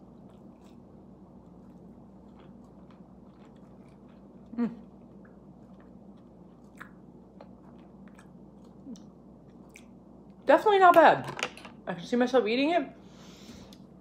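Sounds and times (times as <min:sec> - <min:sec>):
person chewing wetly: 0:00.0 - 0:10.4.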